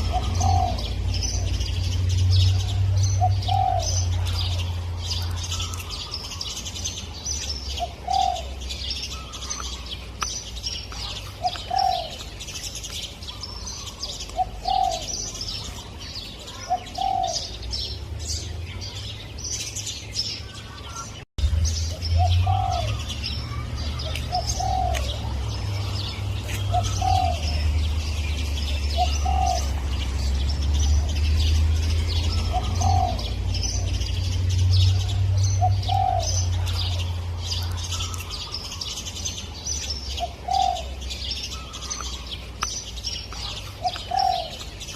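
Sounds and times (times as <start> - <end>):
dove cooing: 0.0 - 6.5, 7.7 - 9.8, 11.0 - 12.3, 13.3 - 17.7, 22.2 - 28.0, 28.6 - 30.0, 32.1 - 34.0, 35.0 - 38.6, 40.2 - 42.2, 43.4 - 44.7
small birds chirping: 0.0 - 44.9.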